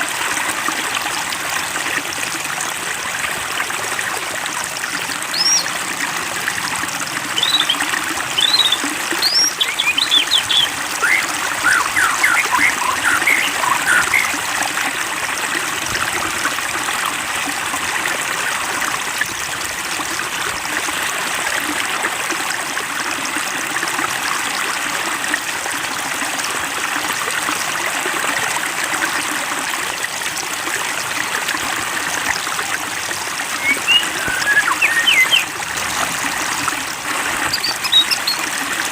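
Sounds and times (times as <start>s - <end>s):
water trickling and splashing: 0.0s - 38.9s.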